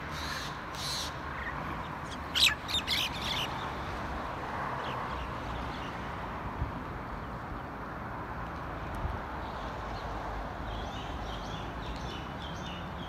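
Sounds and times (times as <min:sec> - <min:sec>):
outdoor background noise: 0:00.0 - 0:13.0
bird calling: 0:02.1 - 0:03.5.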